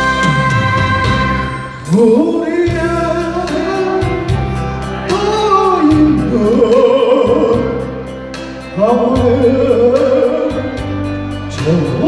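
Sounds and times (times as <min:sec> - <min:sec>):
backing track with steady beat: 0:00.0 - 0:12.0
man singing with vibrato: 0:00.0 - 0:12.0.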